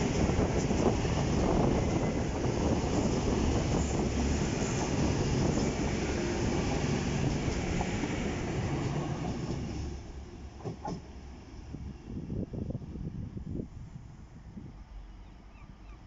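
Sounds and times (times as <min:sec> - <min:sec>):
diesel train passing: 0:00.0 - 0:15.8.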